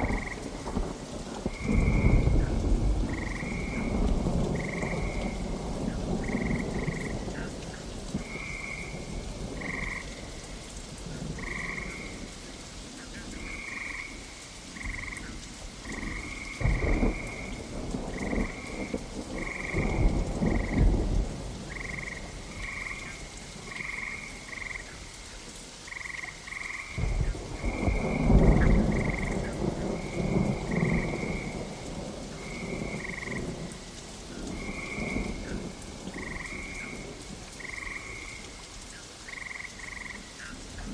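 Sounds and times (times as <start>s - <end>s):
thunder rolling: 0.0s - 7.4s, 15.9s - 22.9s, 27.0s - 33.8s
frogs croaking: 0.0s - 40.9s
steady rain: 0.0s - 40.9s.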